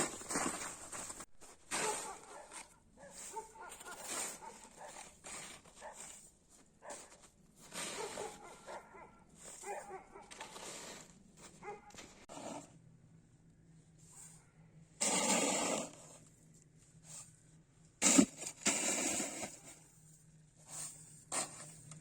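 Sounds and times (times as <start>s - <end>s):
snow scraping and crunching: 0.0s - 12.7s, 15.0s - 16.3s, 18.0s - 19.9s.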